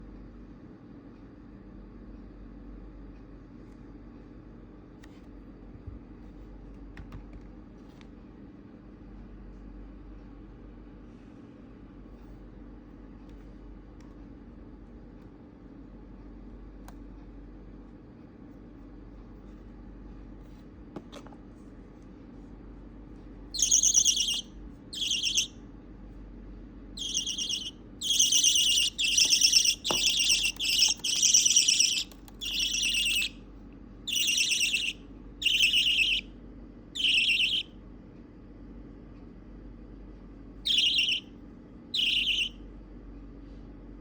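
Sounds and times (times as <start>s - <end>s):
budgerigar chick calling: 23.6s - 25.5s, 27.0s - 33.4s, 34.1s - 36.3s, 37.0s - 37.7s, 40.7s - 41.2s, 41.9s - 42.6s.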